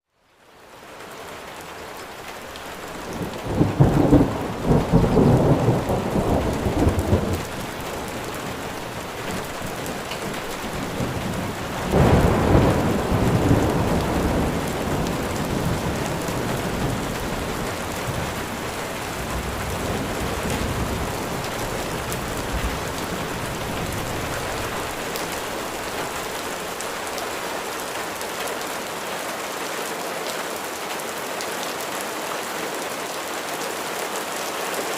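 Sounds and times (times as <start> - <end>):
steady rain falling: 0.0 - 34.9
thunder rumbling: 3.0 - 27.3.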